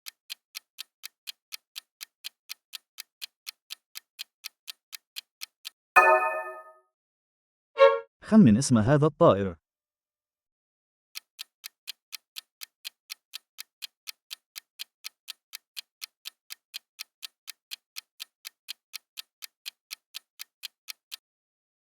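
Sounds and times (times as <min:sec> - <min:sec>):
ticking clock countdown: 0:00.0 - 0:06.7, 0:11.2 - 0:21.2.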